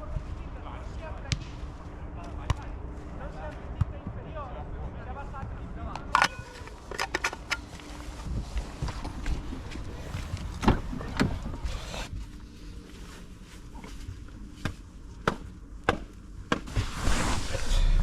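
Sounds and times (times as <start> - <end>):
outdoor background rumble: 4.0 - 18.0.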